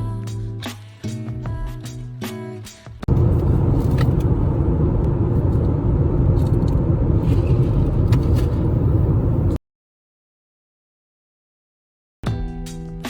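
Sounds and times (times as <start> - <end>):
loud low rumble: 3.1 - 9.6.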